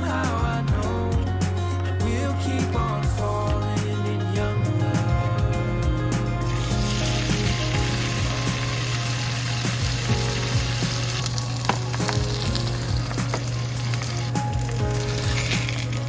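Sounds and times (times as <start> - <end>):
food sizzling in a pan: 6.4 - 16.0.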